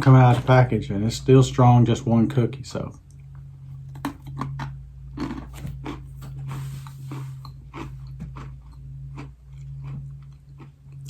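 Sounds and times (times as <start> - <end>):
low electrical hum: 0.0 - 11.0
crunching and chewing cookie: 3.1 - 11.0.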